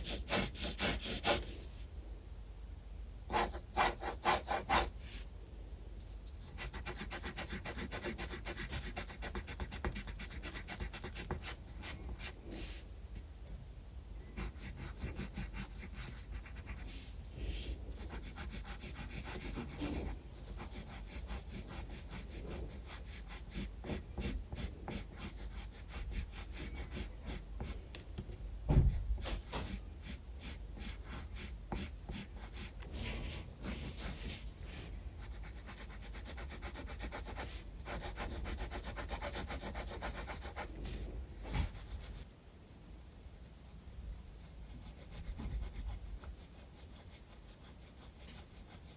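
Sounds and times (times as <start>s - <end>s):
pencil scratching on paper: 0.0s - 1.7s, 3.3s - 4.9s, 6.3s - 12.8s, 14.4s - 27.8s, 28.8s - 48.9s
loud knock: 28.7s - 29.0s.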